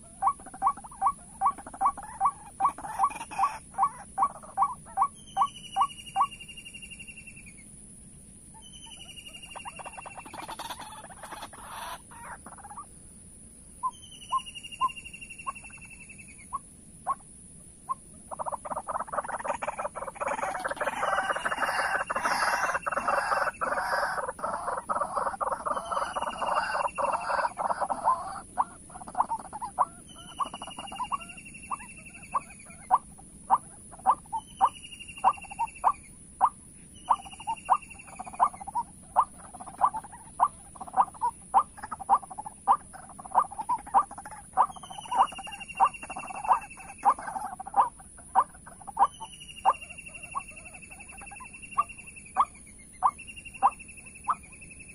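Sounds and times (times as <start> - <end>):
harsh croaking bird calls: 0.0 - 7.6, 8.5 - 12.9, 13.8 - 54.9
sharp repeated bird notes: 0.0 - 7.6, 17.9 - 54.9.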